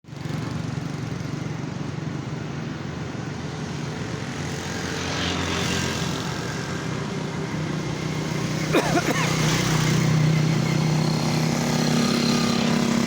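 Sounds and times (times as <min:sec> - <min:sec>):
road traffic: 0:00.1 - 0:13.0.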